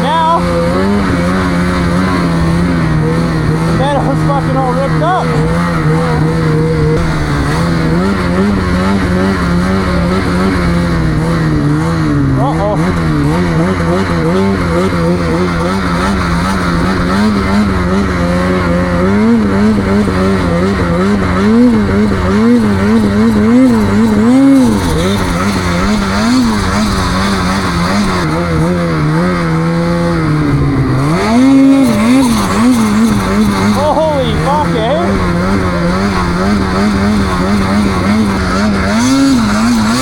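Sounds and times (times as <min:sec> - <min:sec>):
snowmobile engine revving: 0:00.0 - 0:40.0.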